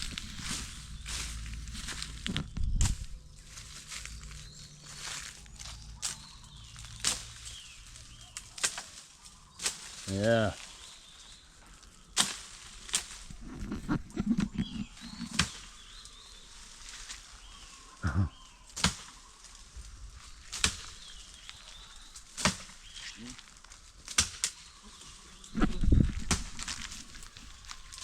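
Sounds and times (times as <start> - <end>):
faint bird chirps: 13.2 - 23.6.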